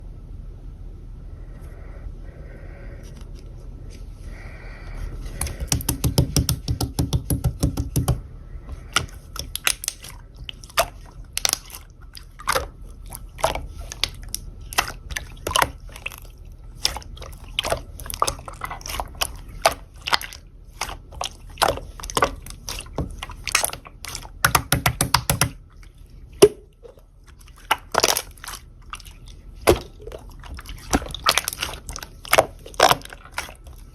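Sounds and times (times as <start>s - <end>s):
slime squished by hand: 8.8s - 33.9s.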